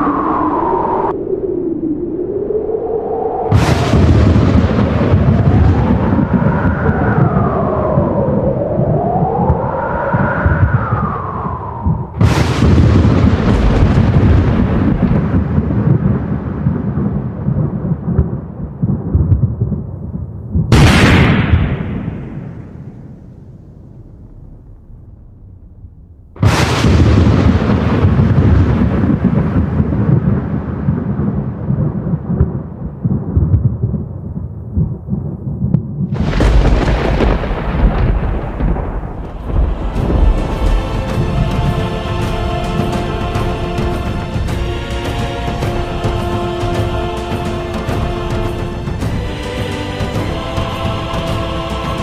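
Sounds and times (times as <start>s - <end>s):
thunder crack and rumble: 3.1s - 52.0s
loud crash: 3.5s - 8.2s, 11.5s - 17.7s, 20.7s - 31.2s, 36.2s - 52.0s.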